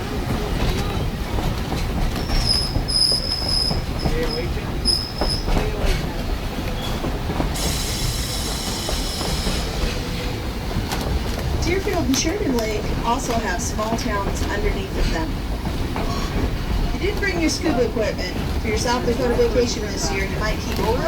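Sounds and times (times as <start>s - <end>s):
train rumbling on rails: 0.0s - 21.0s
train wheels squealing: 2.2s - 5.8s, 6.6s - 10.3s.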